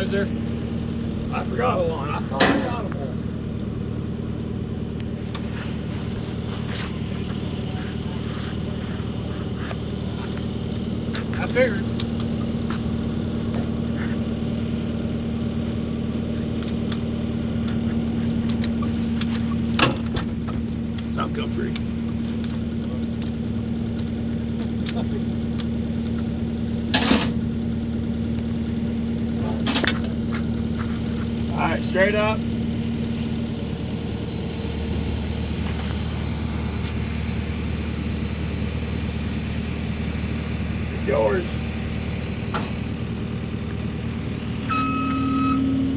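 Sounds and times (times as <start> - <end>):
engine idling hum: 0.0 - 45.9.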